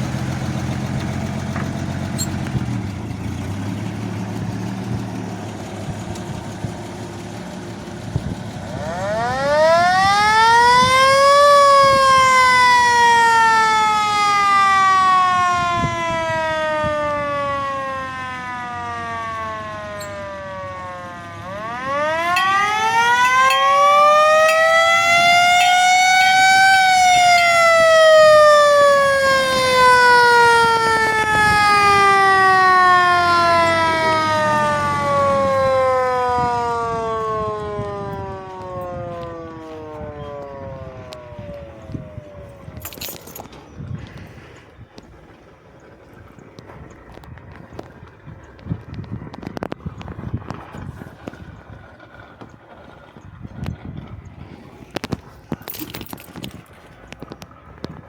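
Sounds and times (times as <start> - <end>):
fire truck engine idling: 0.0 - 42.8, 43.4 - 58.0
siren wailing: 8.5 - 43.5.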